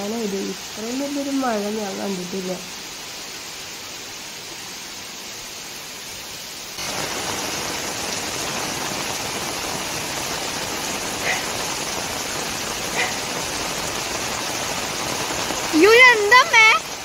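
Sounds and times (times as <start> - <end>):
heavy rain pouring: 0.0 - 17.0
water spouting from drain pipe: 6.8 - 17.0.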